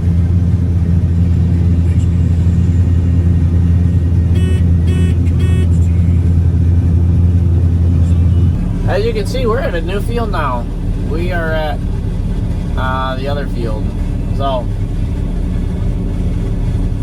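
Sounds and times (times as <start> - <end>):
combine harvester droning: 0.0 - 17.0
short electronic beeps: 4.2 - 6.2.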